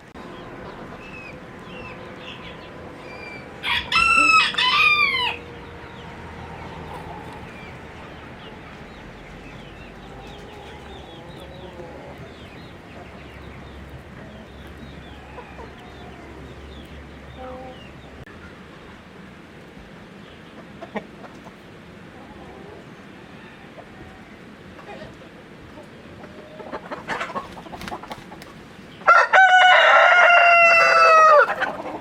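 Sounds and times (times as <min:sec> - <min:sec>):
chickens clucking softly: 0:00.2 - 0:19.0, 0:20.2 - 0:32.0
rooster crowing: 0:01.0 - 0:07.8, 0:15.1 - 0:16.7, 0:29.0 - 0:31.7.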